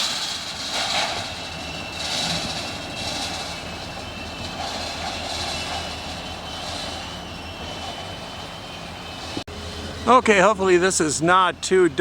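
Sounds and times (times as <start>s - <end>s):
diesel locomotive engine drone: 0.0s - 12.0s.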